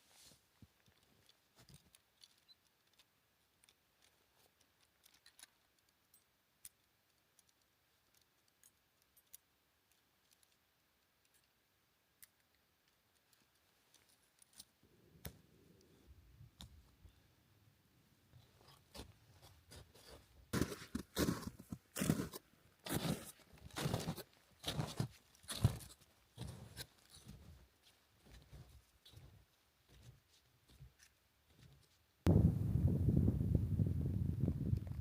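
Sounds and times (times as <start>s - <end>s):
low scuffing: 19.7s - 26.8s.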